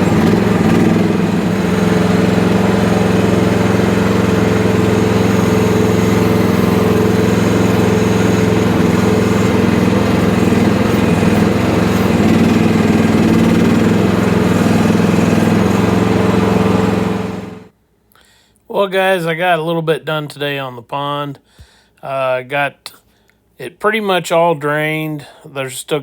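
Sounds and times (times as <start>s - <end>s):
small excavator engine running: 0.0s - 17.7s.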